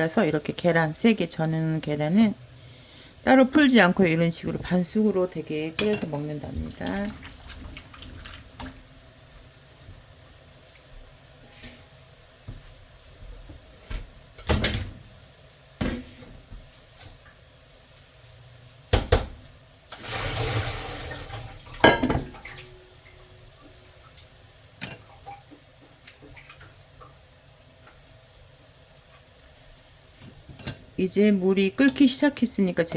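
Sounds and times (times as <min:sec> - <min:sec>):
dishes and pots clinking: 0:05.8 - 0:06.2, 0:21.8 - 0:22.8
water running from a tap: 0:06.2 - 0:08.9, 0:19.9 - 0:28.1.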